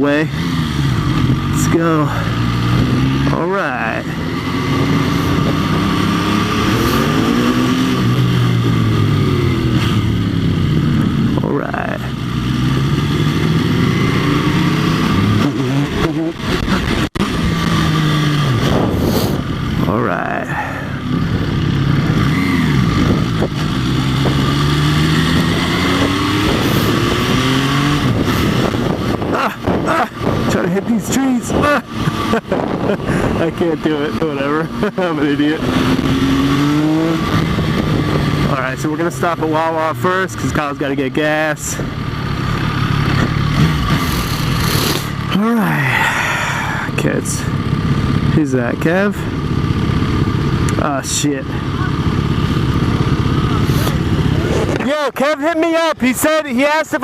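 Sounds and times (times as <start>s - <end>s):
motorcycle engine pulling off: 0.3s - 55.1s
wind on microphone: 4.6s - 9.2s, 16.6s - 19.6s, 22.6s - 30.5s, 35.8s - 38.5s.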